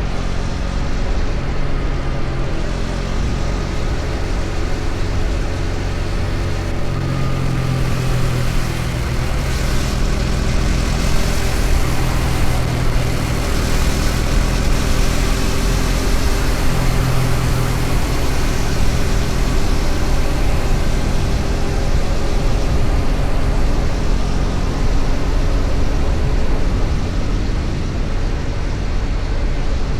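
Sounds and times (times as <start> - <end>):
motorcycle engine cruising: 0.0 - 29.9
wind and road rush: 0.0 - 29.9.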